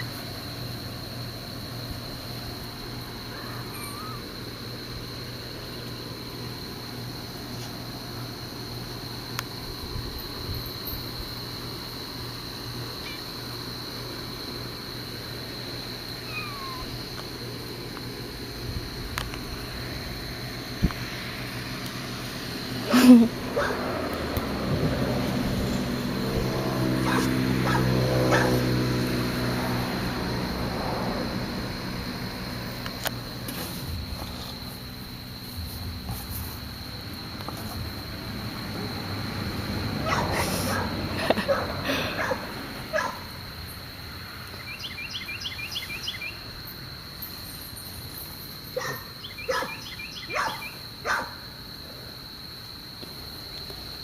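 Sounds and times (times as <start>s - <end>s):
high-pitched insect drone: 0.0s - 54.0s
young animal crying: 3.3s - 4.4s, 16.2s - 17.0s.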